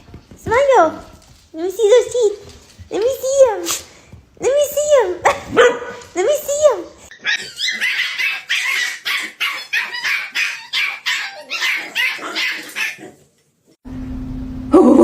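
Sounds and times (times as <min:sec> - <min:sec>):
dog yipping and barking: 0:07.1 - 0:13.1.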